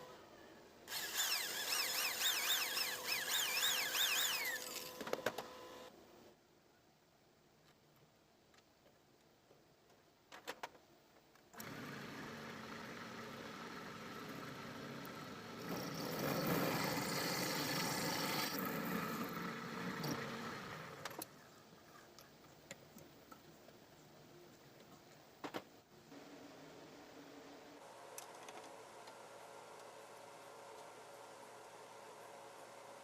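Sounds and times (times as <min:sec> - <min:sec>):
electric power tool running: 0:00.9 - 0:05.0.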